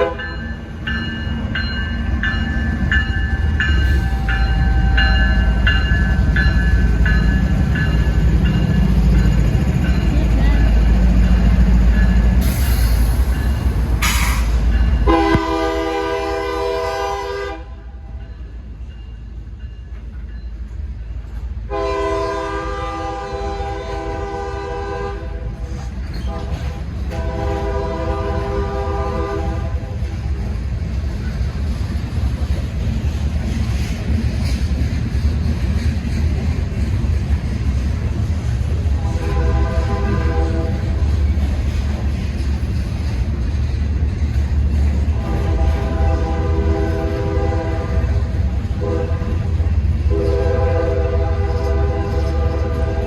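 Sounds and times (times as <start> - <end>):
train horn blasts: 0.0 - 0.4, 15.0 - 18.0, 21.7 - 30.0, 39.0 - 41.1, 45.1 - 53.0
low rumble of passing train: 0.0 - 53.0.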